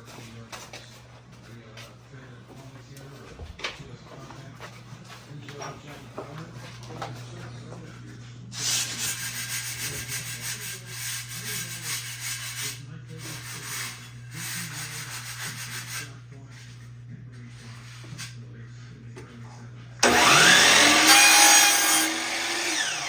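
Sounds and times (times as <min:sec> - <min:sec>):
mitre saw cutting: 0:20.0 - 0:23.0.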